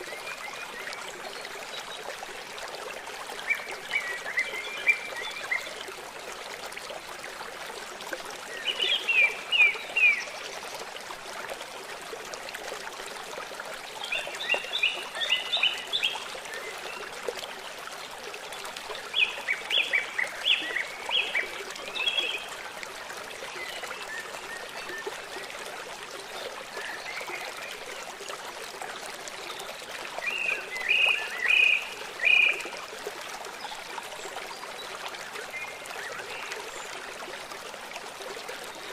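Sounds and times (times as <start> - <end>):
songbird singing: 30.2 - 32.6.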